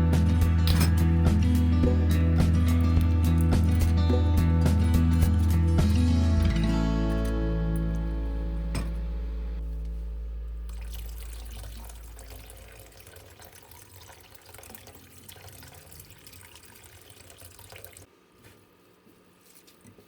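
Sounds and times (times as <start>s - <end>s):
background music: 0.0s - 12.3s.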